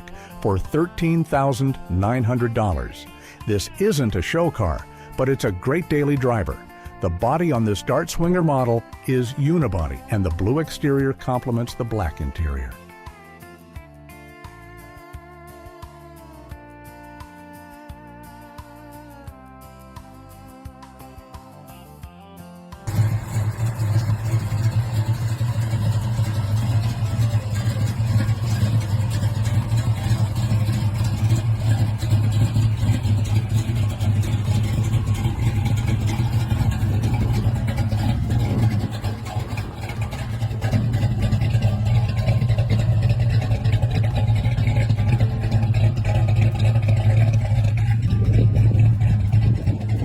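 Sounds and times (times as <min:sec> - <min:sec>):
car engine running: 0:22.9 - 0:50.0.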